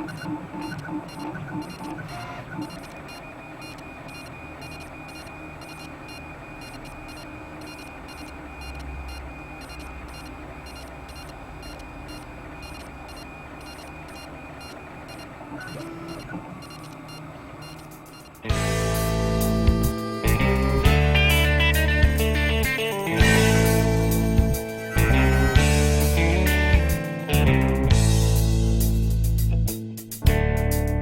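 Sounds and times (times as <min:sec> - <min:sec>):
stepper motor whine: 0:00.0 - 0:29.0
low hum: 0:00.0 - 0:29.2.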